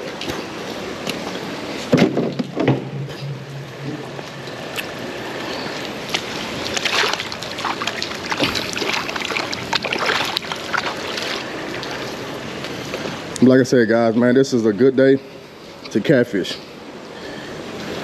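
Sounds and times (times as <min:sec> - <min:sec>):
water splashes and knocks: 0:01.9 - 0:03.1, 0:06.1 - 0:12.0
rush of flooded creek: 0:04.2 - 0:14.3.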